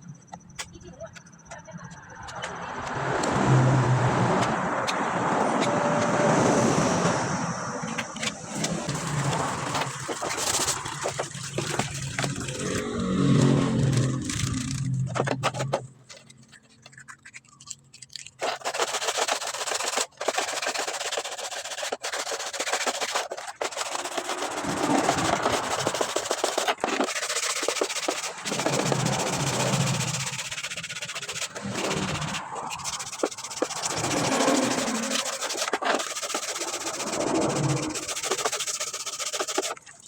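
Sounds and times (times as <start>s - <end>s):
scraping and clicking: 7.8s - 40.0s.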